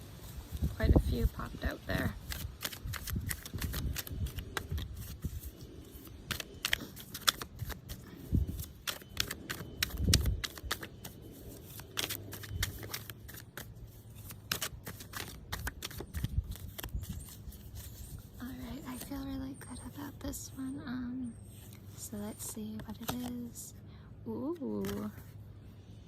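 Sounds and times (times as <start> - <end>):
cards being shuffled: 2.0 - 19.3, 21.6 - 23.5, 24.6 - 25.4.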